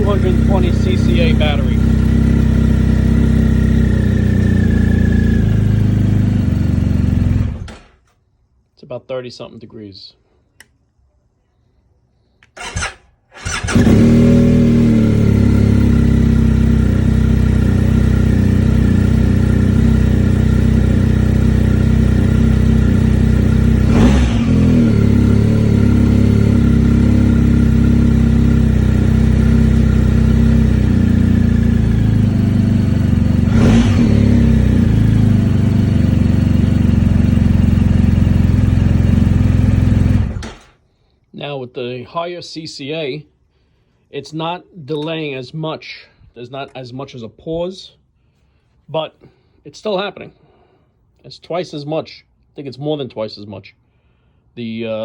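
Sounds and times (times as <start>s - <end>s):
motorcycle engine cranking and idling: 0.0s - 8.2s, 12.4s - 40.9s
motorcycle starter: 12.4s - 14.5s, 40.1s - 40.8s.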